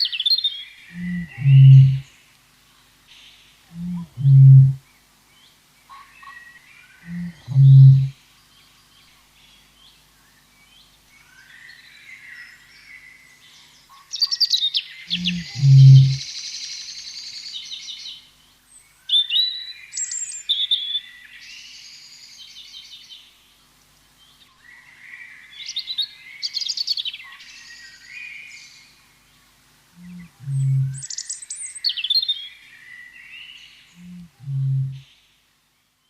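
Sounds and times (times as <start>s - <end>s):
songbirds chirping: 0.0s - 36.0s
low two-note bird call: 1.0s - 2.0s, 15.2s - 16.2s.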